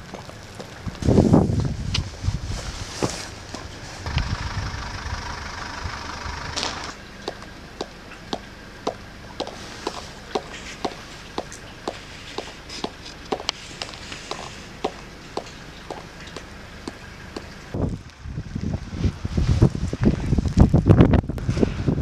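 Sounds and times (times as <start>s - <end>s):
footsteps crunching in snow: 0.0s - 4.1s, 6.6s - 17.6s.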